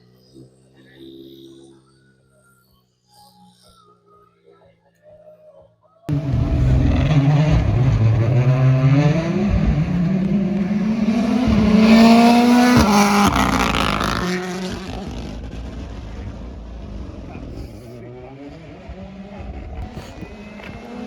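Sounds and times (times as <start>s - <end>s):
rally car engine accelerating: 6.1s - 21.0s.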